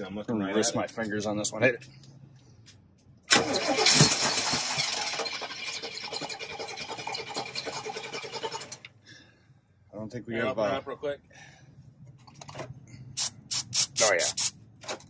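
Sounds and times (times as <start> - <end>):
engine starting and running: 3.2 - 9.0
starter motor cranking: 3.3 - 8.9.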